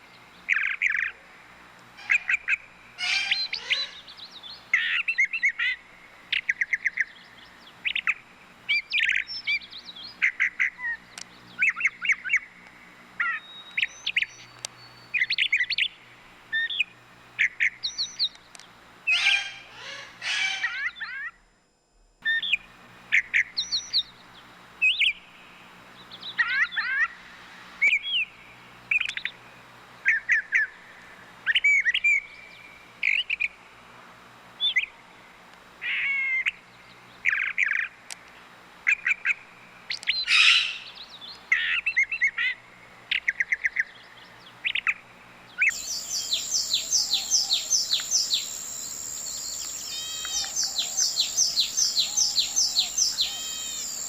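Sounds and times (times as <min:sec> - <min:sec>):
bird chirps whistles and trills: 0:45.6 - 0:54.0.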